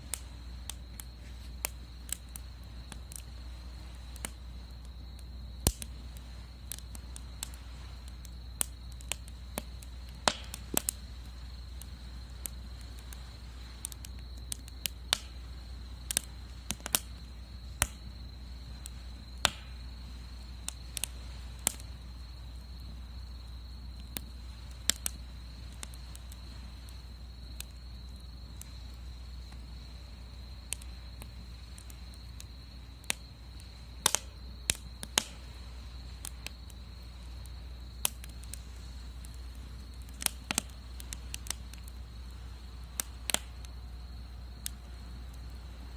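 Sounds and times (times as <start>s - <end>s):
wood fire crackling and popping: 0.0s - 45.9s.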